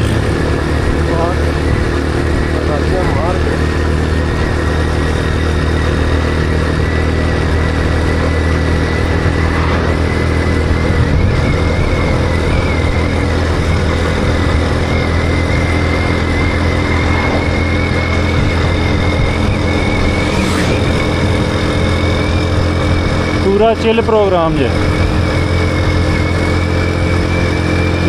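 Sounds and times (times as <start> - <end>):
motorcycle engine running: 0.0 - 28.0
thin steady whine: 7.0 - 24.7.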